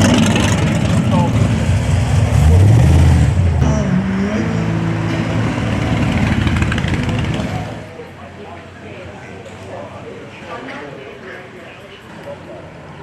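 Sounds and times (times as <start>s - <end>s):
vehicle engine revving: 0.0s - 8.0s.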